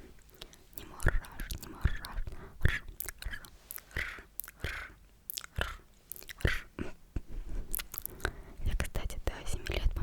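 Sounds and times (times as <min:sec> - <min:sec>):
wet mouth clicks and smacks: 0:00.2 - 0:06.7, 0:07.7 - 0:08.4.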